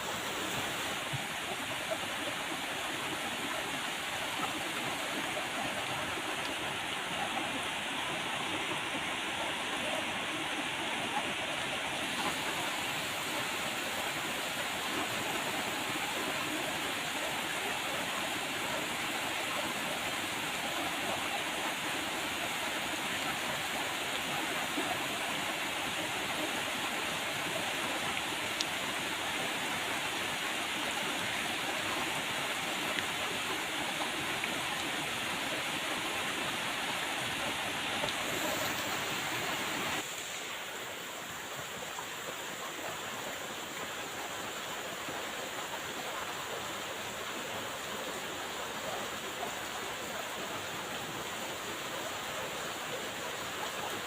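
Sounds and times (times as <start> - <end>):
steady rain falling: 30.8 - 42.9.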